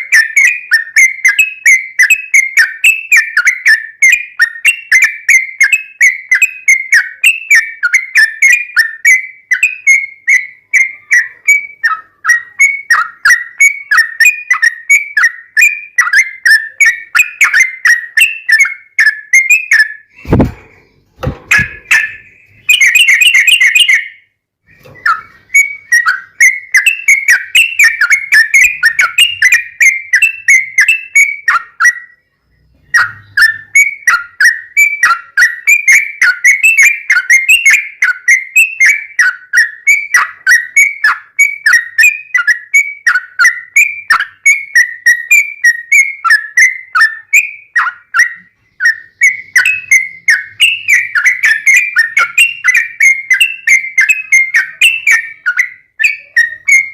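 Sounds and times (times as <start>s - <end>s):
bird chattering song: 0.0s - 56.9s.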